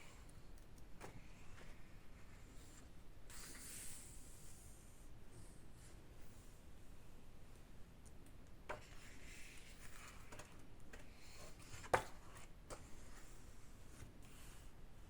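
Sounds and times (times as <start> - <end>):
paper rustling: 8.7 - 13.4.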